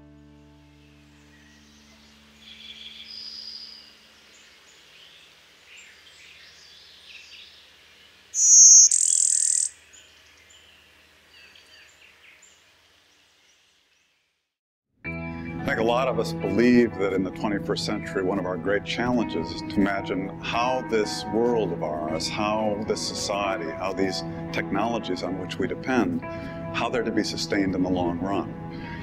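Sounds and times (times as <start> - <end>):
birds chirping and calling: 1.2 - 7.6, 8.4 - 12.6
loud high-pitched bird call: 8.4 - 9.8.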